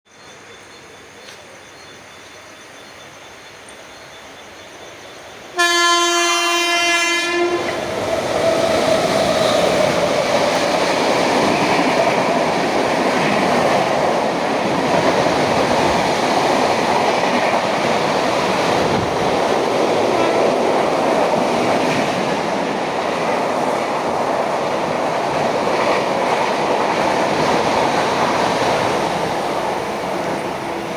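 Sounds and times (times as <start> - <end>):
train rumbling and clattering past: 1.3 - 30.9
train horn blast: 5.6 - 7.8, 20.1 - 20.6.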